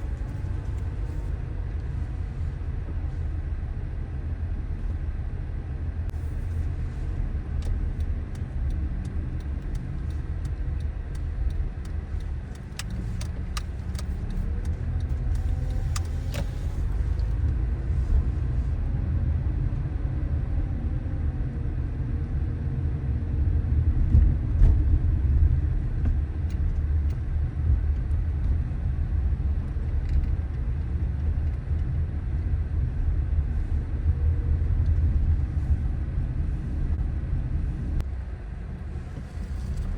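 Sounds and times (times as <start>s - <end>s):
car road and engine rumble: 0.0s - 39.9s
sharp clicks: 9.4s - 16.6s.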